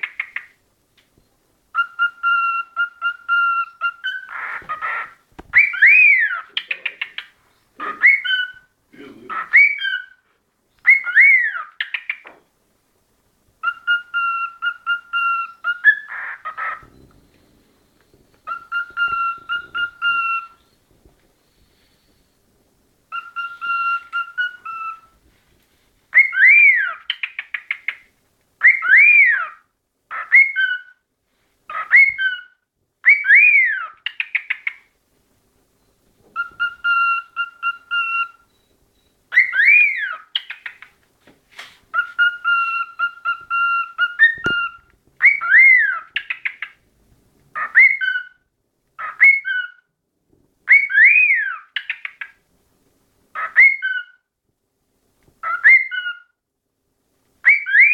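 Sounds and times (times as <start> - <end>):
cockatiel whistling: 1.7 - 8.7, 9.3 - 10.2, 10.8 - 12.3, 13.6 - 17.4, 18.4 - 20.8, 23.1 - 25.1, 26.1 - 28.0, 28.6 - 31.0, 31.7 - 34.8, 36.4 - 40.9, 41.9 - 46.8, 47.6 - 48.4, 49.0 - 49.8, 50.7 - 52.3, 53.4 - 54.2, 55.4 - 56.3, 57.4 - 57.9.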